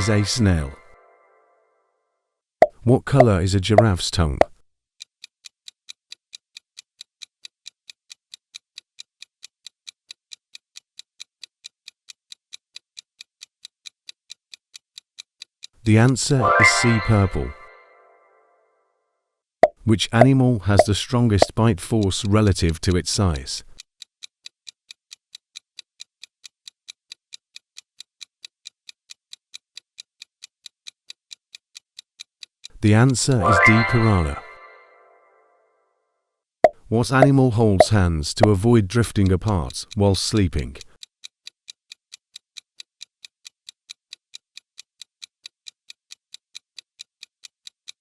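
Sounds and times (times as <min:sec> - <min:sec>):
countdown timer ticking: 0:00.0 - 0:01.2, 0:15.9 - 0:18.4, 0:19.6 - 0:22.8, 0:32.8 - 0:35.4, 0:36.6 - 0:40.9
clock-like timer ticking: 0:02.6 - 0:18.3, 0:19.6 - 0:35.4, 0:36.6 - 0:48.0.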